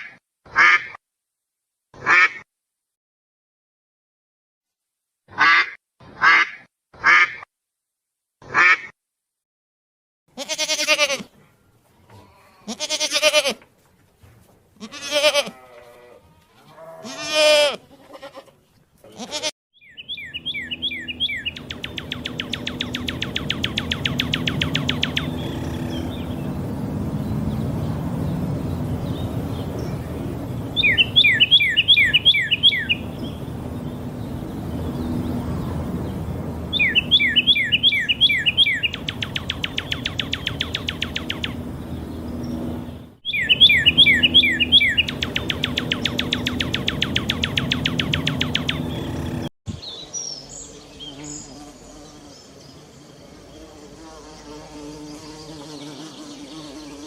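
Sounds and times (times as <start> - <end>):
songbird whistling descending notes: 19.8 - 26.5, 30.8 - 33.1, 36.7 - 41.6, 43.2 - 49.3
fast pulsing buzz: 20.7 - 27.2, 45.0 - 49.5.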